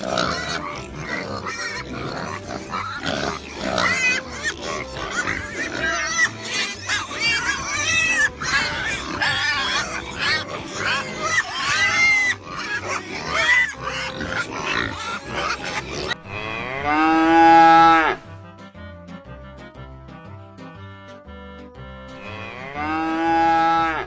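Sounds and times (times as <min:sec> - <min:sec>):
high arching animal calls: 0:00.0 - 0:18.2
light background music: 0:00.0 - 0:24.0
cow mooing: 0:12.3 - 0:18.3, 0:22.2 - 0:24.0.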